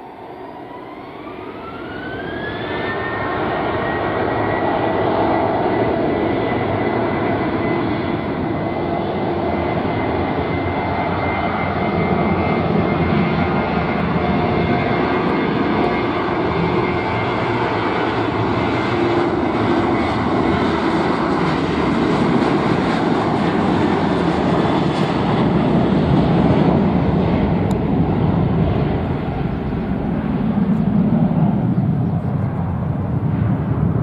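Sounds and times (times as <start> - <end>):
jet engine roar: 0.0 - 34.0.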